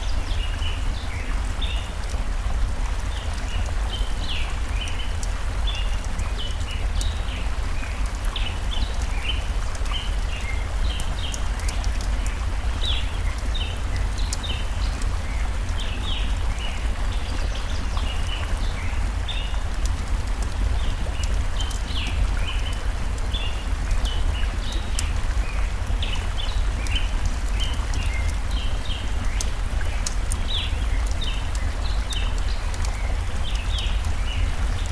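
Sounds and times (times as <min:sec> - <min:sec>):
stream flowing: 0:00.0 - 0:34.9
campfire crackling and popping: 0:00.2 - 0:34.9.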